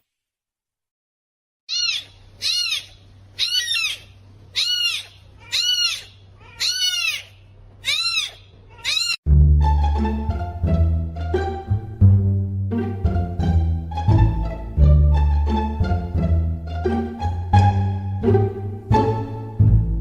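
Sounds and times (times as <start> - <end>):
kitten mewing: 1.7 - 9.2
plucked-string background music: 9.3 - 20.0.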